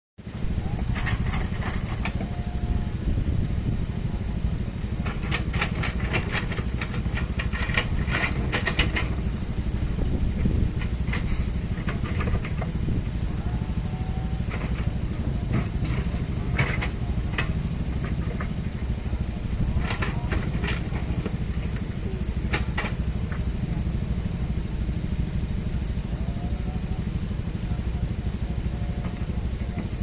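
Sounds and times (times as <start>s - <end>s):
excavator diesel engine running: 0.2s - 30.0s
bucket clanking and scraping soil: 0.4s - 2.2s.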